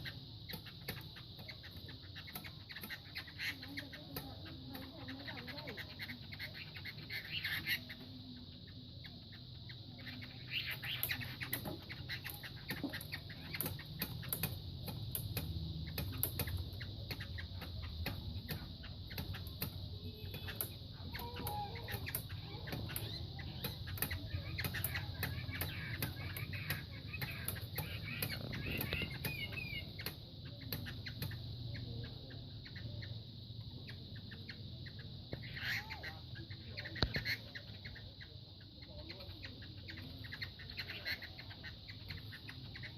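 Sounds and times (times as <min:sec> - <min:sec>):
birds scuffling and striking: 0:00.0 - 0:42.9.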